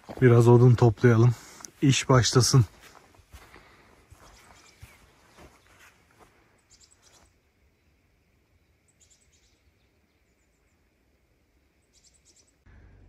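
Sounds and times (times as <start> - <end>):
high chirping birdsong: 3.2 - 12.7.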